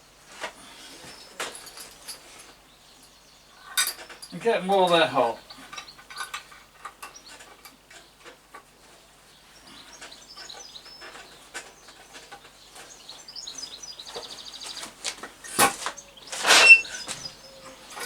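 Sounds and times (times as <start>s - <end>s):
small birds chirping: 0.6s - 1.4s, 2.2s - 6.3s, 6.9s - 18.0s
high bird trill: 16.0s - 18.0s.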